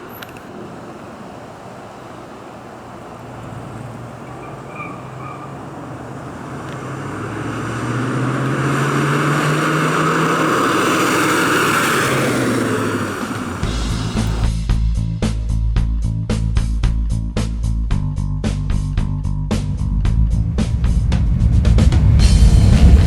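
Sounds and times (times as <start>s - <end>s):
car engine driving past: 0.0s - 14.5s, 19.8s - 23.0s.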